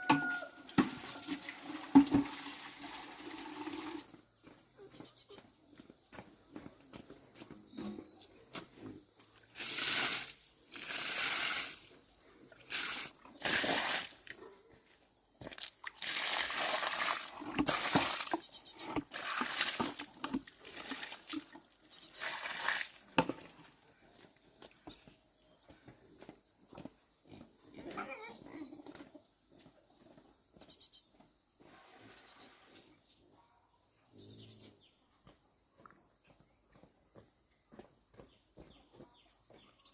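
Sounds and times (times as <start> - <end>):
water pouring and splashing: 0.6 - 4.2, 9.4 - 14.3, 15.5 - 23.7.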